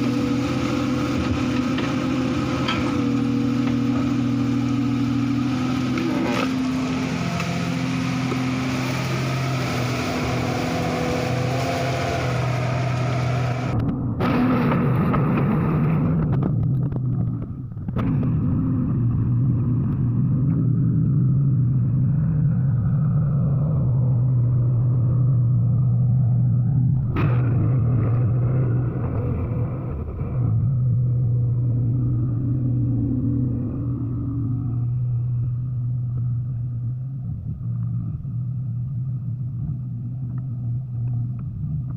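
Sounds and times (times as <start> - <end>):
excavator diesel engine running: 0.0 - 14.7.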